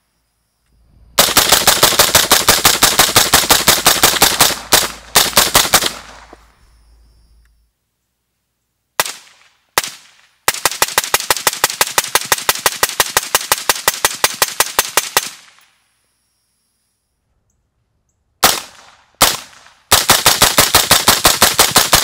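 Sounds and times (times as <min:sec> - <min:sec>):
rapid string of rifle shots: 0:01.2 - 0:06.4, 0:09.0 - 0:15.6, 0:18.4 - 0:22.0
suppressed rifle shots: 0:01.2 - 0:06.5.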